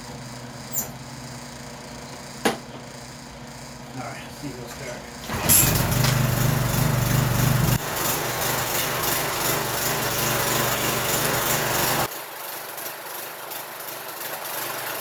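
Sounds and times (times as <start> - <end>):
lawn mower engine running: 5.2 - 12.1.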